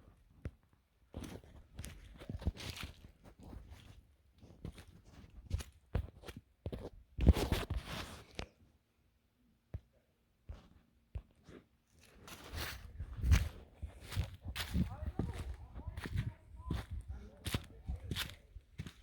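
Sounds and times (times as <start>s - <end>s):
footsteps on trail: 1.1s - 7.5s, 12.0s - 19.0s.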